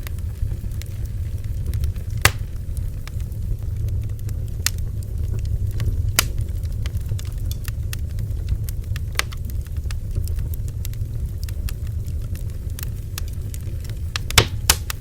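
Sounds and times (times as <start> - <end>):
bonfire crackling and popping: 0.0 - 15.0
low fire rumble: 0.0 - 15.0.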